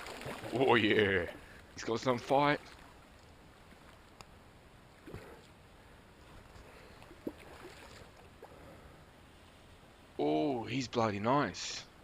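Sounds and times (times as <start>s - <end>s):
faint lapping water: 0.0s - 10.2s.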